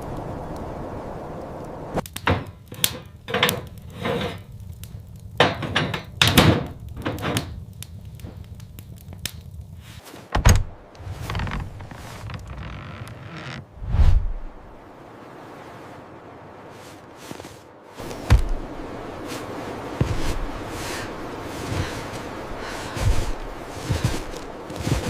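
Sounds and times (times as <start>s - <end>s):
irregular knocks and thuds: 2.2s - 4.4s, 5.4s - 7.6s, 10.2s - 13.6s, 18.0s - 21.0s
steady low rumble: 13.7s - 14.8s, 18.0s - 25.0s
heavy low thump: 18.2s - 18.7s.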